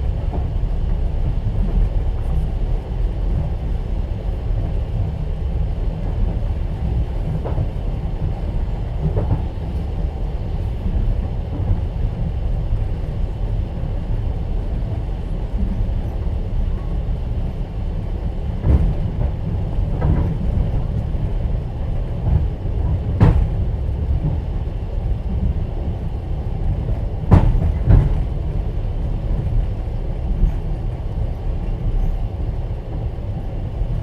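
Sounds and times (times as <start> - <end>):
train rumbling: 0.0 - 34.0
knocks in train carriage: 18.6 - 21.3, 22.2 - 24.4, 26.8 - 28.6.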